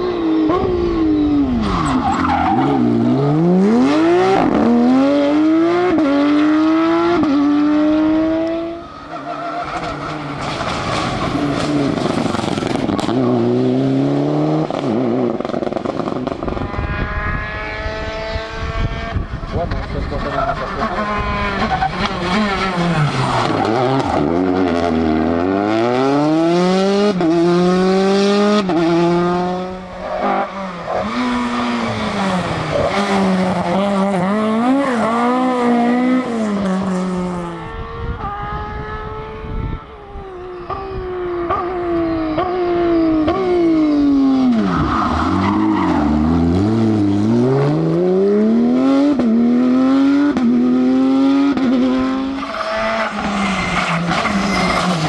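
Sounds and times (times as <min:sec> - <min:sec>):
rally car engines revving: 0:00.0 - 0:55.0
tyre squeal: 0:01.1 - 0:03.0, 0:08.8 - 0:12.3, 0:52.3 - 0:55.0.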